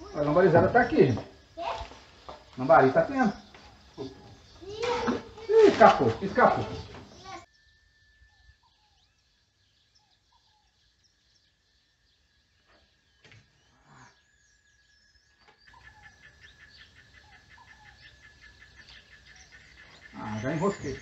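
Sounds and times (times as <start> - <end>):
down-slurred bird chirps: 0.0 - 21.0
thin high tone pulsing trill: 7.5 - 9.2.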